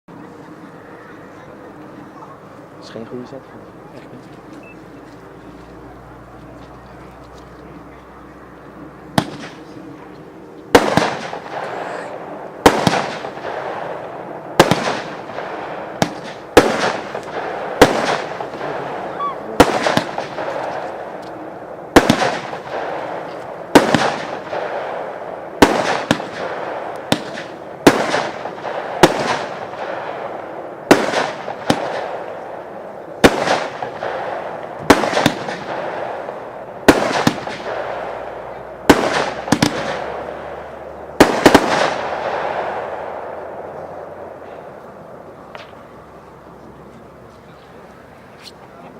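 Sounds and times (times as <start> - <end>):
firework bangs: 8.8 - 44.8.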